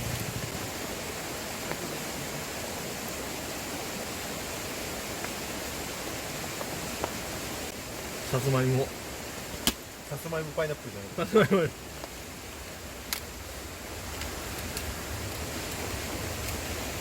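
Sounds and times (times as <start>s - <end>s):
fire burning in a log: 0.0s - 10.4s, 11.2s - 17.0s
faint crackles: 14.0s - 17.0s.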